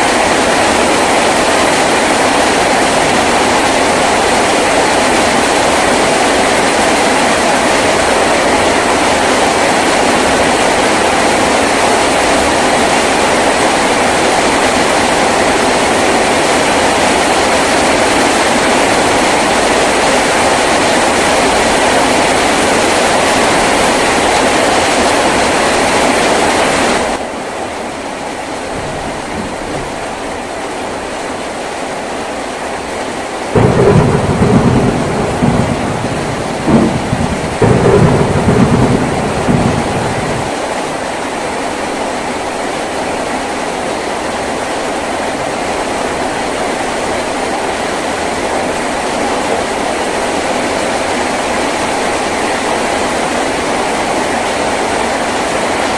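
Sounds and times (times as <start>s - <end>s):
thunder rumbling: 0.0s - 27.2s, 28.2s - 42.6s
heavy rain on a tin roof: 0.0s - 55.9s.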